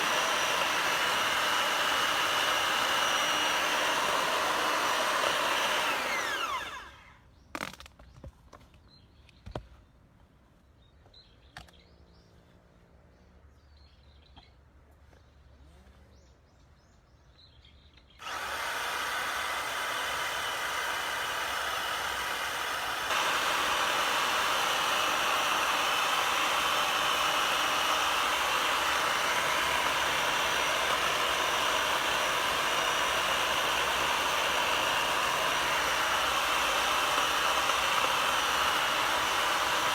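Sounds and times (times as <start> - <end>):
motorised power tool running: 0.0 - 7.2, 18.2 - 39.9.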